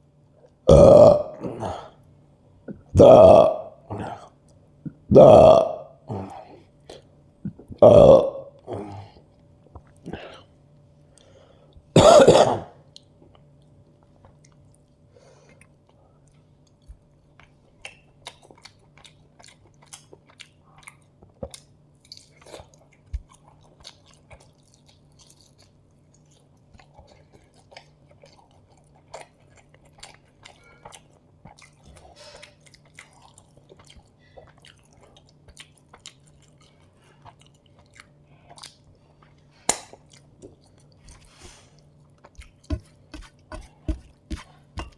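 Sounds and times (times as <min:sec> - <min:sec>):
person clearing throat: 0:00.7 - 0:02.0, 0:02.7 - 0:04.3, 0:04.9 - 0:06.5, 0:07.5 - 0:09.0, 0:12.0 - 0:12.8
close chewing with wet clicks: 0:15.6 - 0:44.2.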